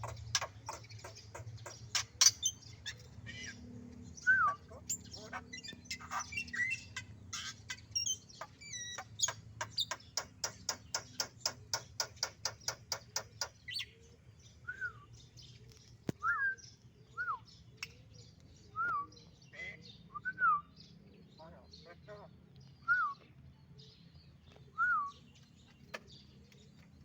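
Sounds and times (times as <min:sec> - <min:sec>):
songbird chirping and whistling: 0:04.1 - 0:10.0, 0:13.6 - 0:15.4, 0:16.1 - 0:21.0, 0:22.6 - 0:23.4, 0:24.5 - 0:25.3.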